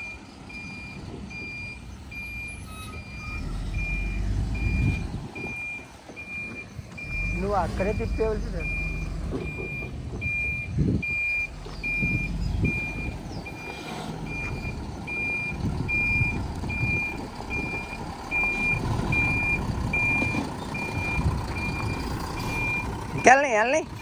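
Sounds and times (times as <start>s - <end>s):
reversing alarm beeping: 0.0s - 23.8s
truck engine running: 0.0s - 24.0s.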